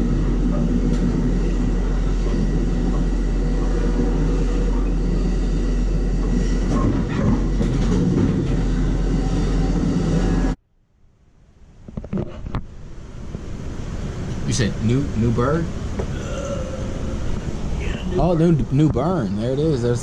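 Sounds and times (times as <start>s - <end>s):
train wheels rumbling on rails: 0.0s - 10.6s.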